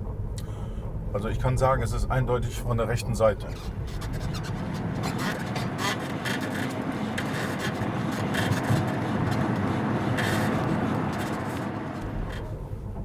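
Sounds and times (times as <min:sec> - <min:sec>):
road rumble inside car: 0:00.0 - 0:13.0
suspension squeaks: 0:03.4 - 0:13.0.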